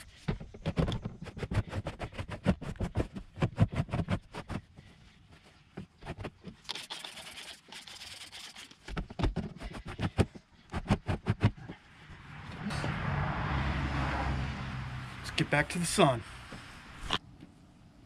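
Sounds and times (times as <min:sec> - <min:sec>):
spray bottle squirting: 0:06.6 - 0:08.9
vehicle-like hum with low drone: 0:11.1 - 0:18.0.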